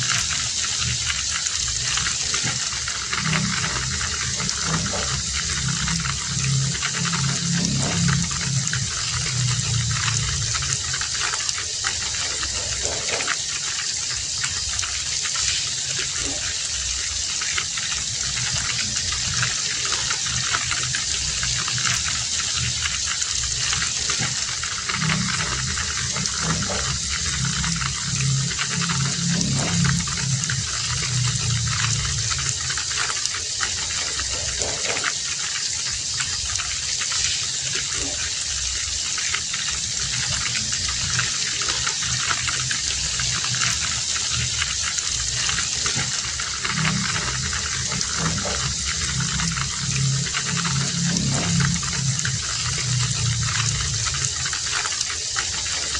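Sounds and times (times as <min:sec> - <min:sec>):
low rumble: 0:00.0 - 0:11.3, 0:18.1 - 0:33.0, 0:39.9 - 0:54.6
heavy rain falling: 0:00.0 - 0:55.9.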